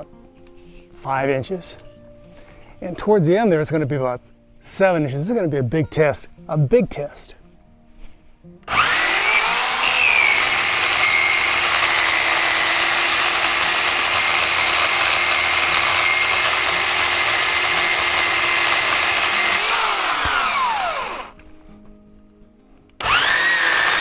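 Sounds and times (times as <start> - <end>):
electric chainsaw cutting branch: 8.7 - 21.5, 23.0 - 24.0.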